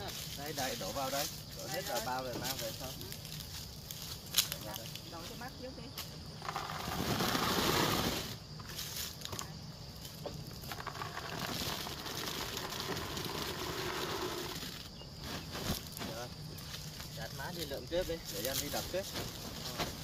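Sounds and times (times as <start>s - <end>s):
nuts poured into a sack: 10.7s - 14.8s.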